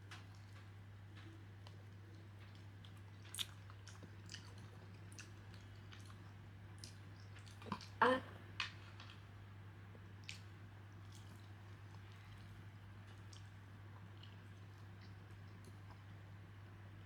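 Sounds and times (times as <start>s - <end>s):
person chewing: 2.5s - 6.2s, 11.1s - 16.1s.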